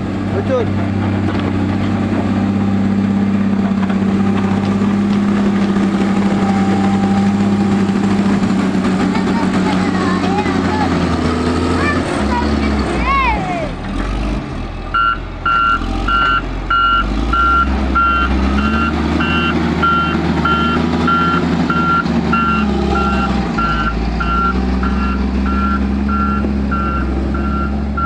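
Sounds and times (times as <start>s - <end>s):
engine running: 0.0s - 28.0s
reversing alarm beeping: 14.9s - 28.0s.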